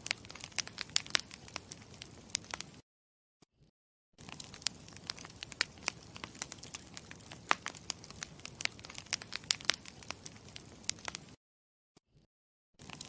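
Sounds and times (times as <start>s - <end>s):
burning wood hissing: 0.0s - 2.8s, 4.2s - 11.4s
campfire popping and snapping: 0.0s - 2.8s, 4.2s - 11.4s, 12.8s - 13.0s.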